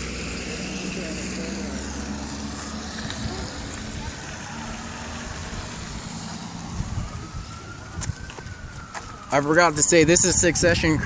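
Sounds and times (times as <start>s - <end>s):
indistinct voices: 0.0s - 7.8s
distant siren wail: 0.0s - 11.0s
vehicle hum: 0.0s - 11.0s.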